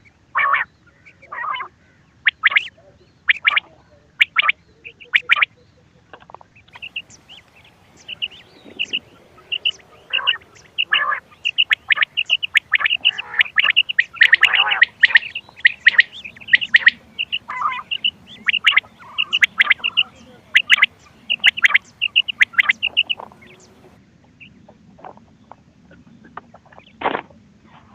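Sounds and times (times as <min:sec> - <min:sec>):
quail chirping calls: 0:00.3 - 0:27.1.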